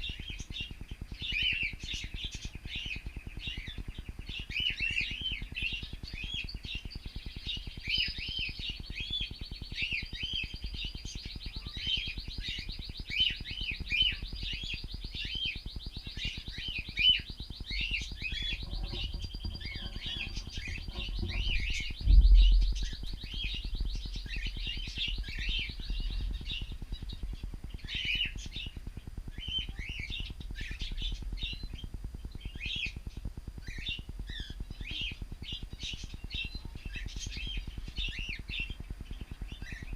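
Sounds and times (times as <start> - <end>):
cockatiels chirping: 7.4 - 39.9
dull low thump: 18.6 - 23.9.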